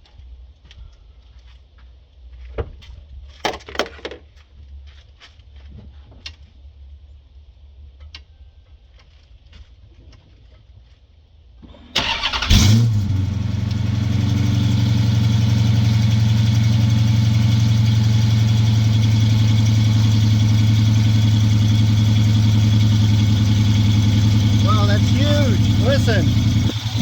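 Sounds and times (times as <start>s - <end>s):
car engine starting and idling: 11.8s - 27.0s
starter cranking: 12.0s - 14.5s, 22.1s - 27.0s.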